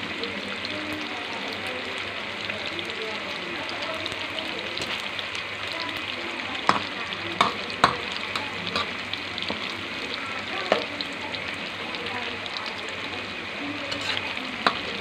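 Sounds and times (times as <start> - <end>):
tofu deep-frying in oil: 0.0 - 15.0
ladle clacking against wok: 6.6 - 9.7, 13.9 - 15.0.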